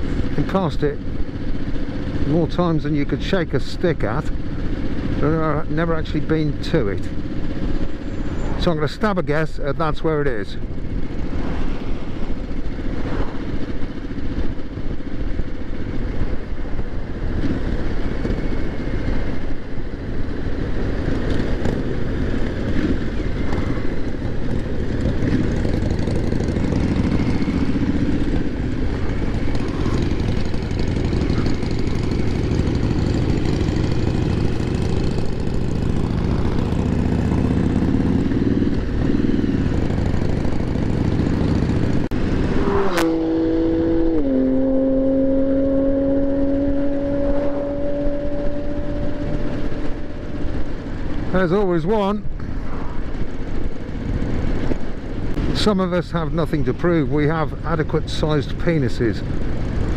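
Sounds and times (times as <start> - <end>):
motorcycle engine cruising: 0.0 - 59.9
wind rushing: 11.2 - 13.8.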